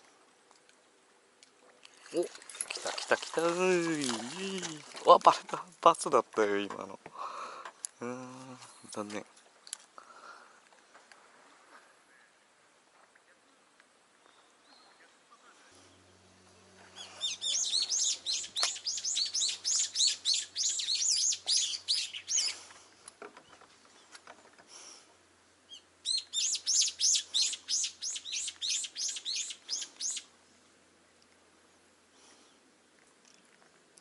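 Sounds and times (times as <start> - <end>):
songbird calling: 14.2 - 22.8, 25.6 - 30.3.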